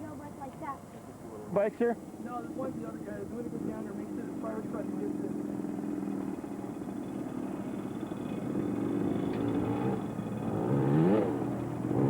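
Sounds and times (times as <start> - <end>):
distant dirt bike engine revving: 2.4 - 12.0.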